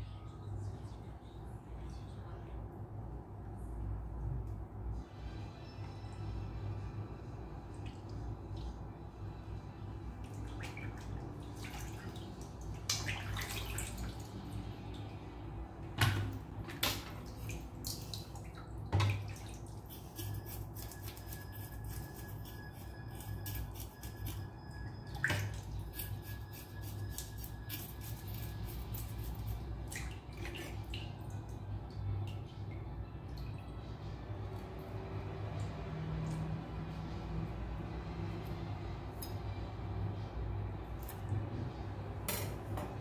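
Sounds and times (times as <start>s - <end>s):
steady low hum: 0.0s - 43.0s
water dripping and splashing: 10.2s - 15.4s, 16.0s - 20.5s, 25.1s - 25.8s, 29.8s - 36.9s.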